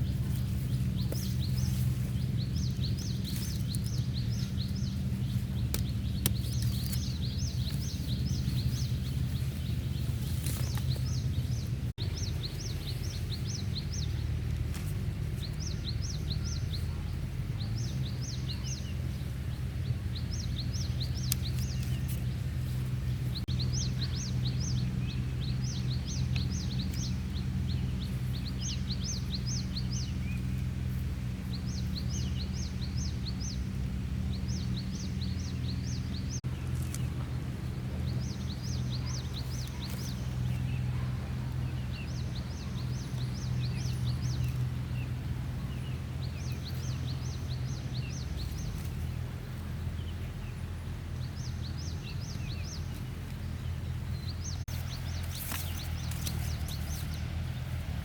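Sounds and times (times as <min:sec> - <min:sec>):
low hum: 0:00.0 - 0:58.0
songbird chirping: 0:00.0 - 0:58.0.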